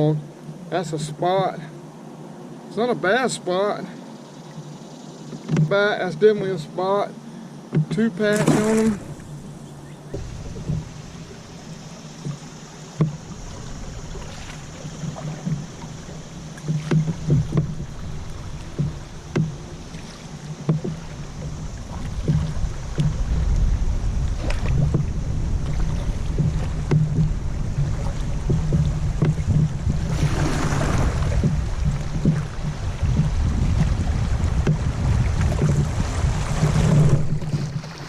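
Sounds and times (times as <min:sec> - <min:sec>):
water: 0:00.0 - 0:38.0
knocks on canoe hull: 0:05.4 - 0:05.8, 0:07.7 - 0:23.7, 0:24.4 - 0:38.0
wind rumble on microphone: 0:08.4 - 0:38.0.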